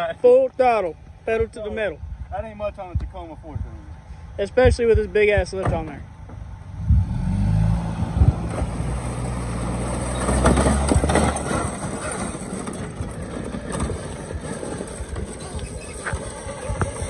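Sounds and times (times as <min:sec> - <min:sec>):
truck engine at full throttle: 0:06.8 - 0:17.0.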